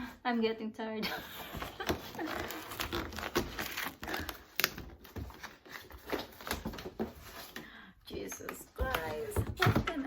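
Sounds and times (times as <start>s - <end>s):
cardboard box crumpling: 1.7s - 7.4s.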